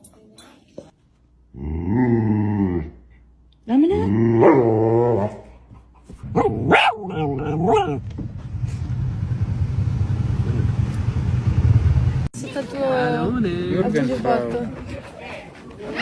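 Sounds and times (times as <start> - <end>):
steady low rumble: 5.8 - 12.3.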